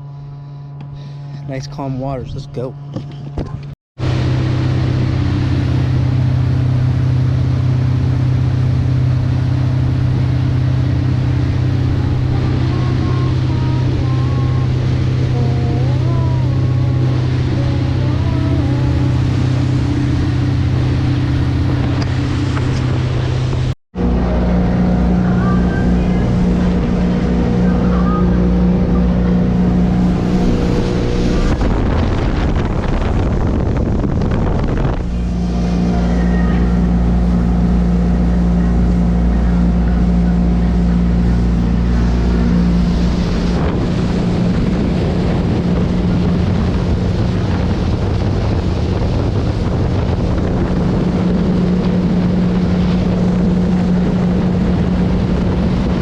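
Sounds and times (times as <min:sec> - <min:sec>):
boat engine running: 0:00.0 - 0:56.0
water noise: 0:00.0 - 0:56.0
wind rushing over microphone: 0:03.0 - 0:56.0.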